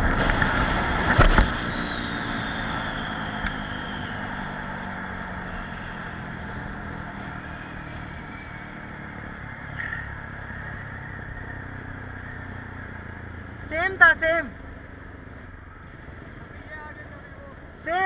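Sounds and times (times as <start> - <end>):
motorcycle engine at high speed: 0.0 - 18.0.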